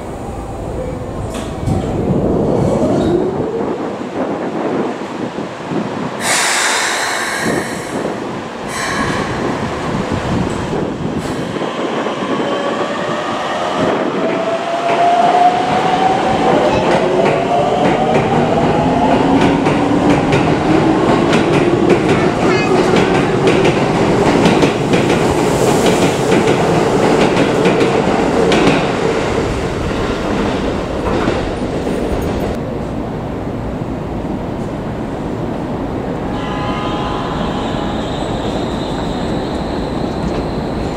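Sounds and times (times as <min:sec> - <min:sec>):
train wheels rumbling: 0:00.0 - 0:33.5.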